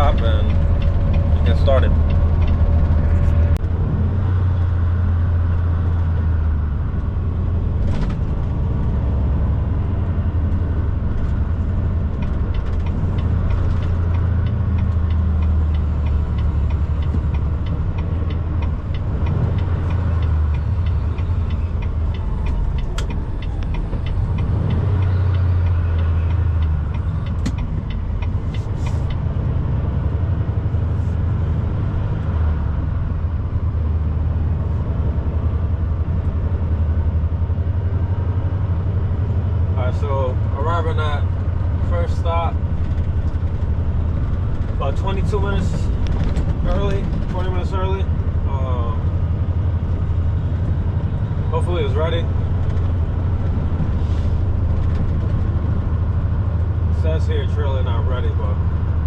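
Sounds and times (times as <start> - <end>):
sharp clicks and knocks: 0.0 - 3.8, 10.5 - 29.8, 42.5 - 48.4
truck engine and road rumble: 0.0 - 59.0.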